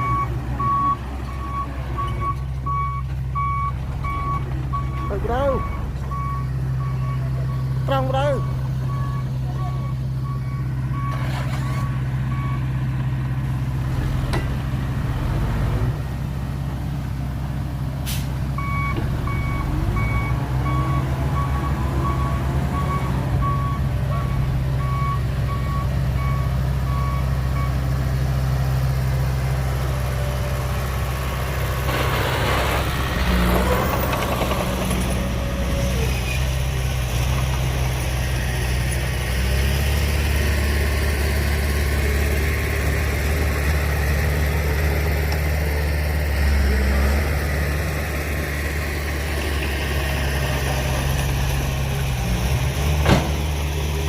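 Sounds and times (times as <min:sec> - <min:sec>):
reversing alarm beeping: 0:00.0 - 0:12.7, 0:18.6 - 0:27.8
heavy diesel engines running: 0:00.0 - 0:54.0
rattling and scraping: 0:31.7 - 0:36.6.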